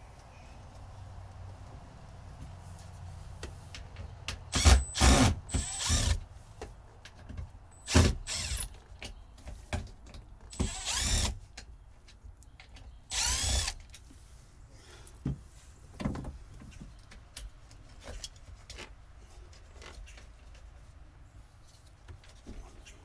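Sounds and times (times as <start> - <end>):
power tool motor spinning: 4.5 - 6.2, 7.9 - 8.7, 10.5 - 11.4, 13.1 - 13.8.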